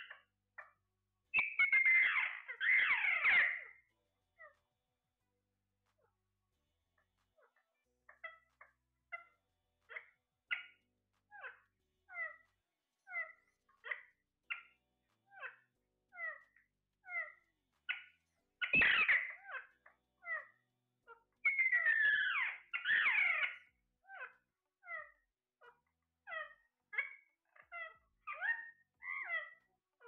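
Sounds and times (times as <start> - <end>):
parrot chirping: 0.0 - 4.6, 7.4 - 29.7
parrot squawking harshly: 1.5 - 3.8, 21.4 - 25.1.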